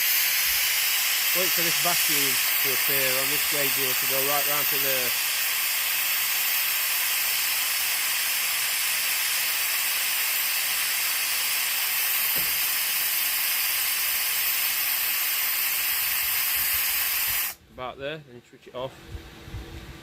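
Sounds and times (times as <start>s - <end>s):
compressed air hissing: 0.0s - 17.6s.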